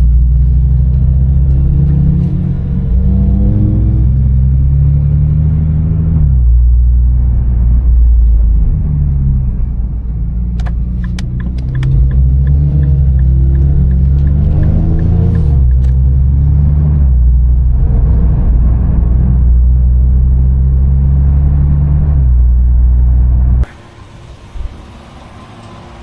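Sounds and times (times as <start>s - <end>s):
car engine accelerating: 0.0s - 26.0s
sharp clicks: 10.6s - 16.1s.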